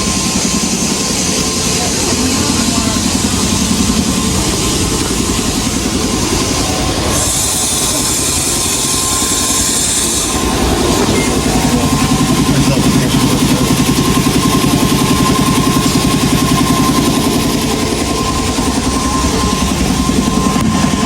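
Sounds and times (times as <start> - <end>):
farm machinery rumbling: 0.0 - 21.0
hiss: 2.3 - 17.6.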